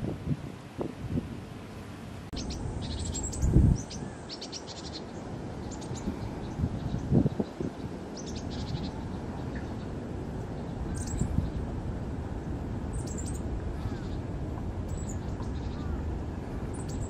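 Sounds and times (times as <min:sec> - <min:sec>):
steady low rumble: 0:02.1 - 0:17.0
small birds chirping: 0:02.3 - 0:11.7, 0:12.9 - 0:17.0.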